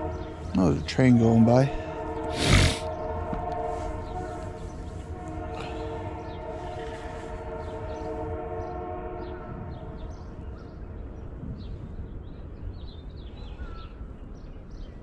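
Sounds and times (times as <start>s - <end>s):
train horn chord: 0.0s - 10.4s
train rumble: 0.0s - 14.9s.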